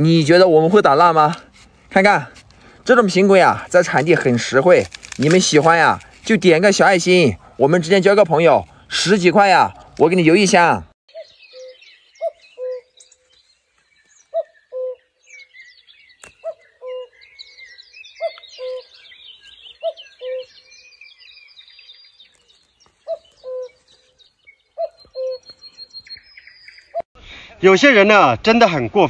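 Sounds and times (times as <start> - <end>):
high bird chirping: 11.1 - 27.1.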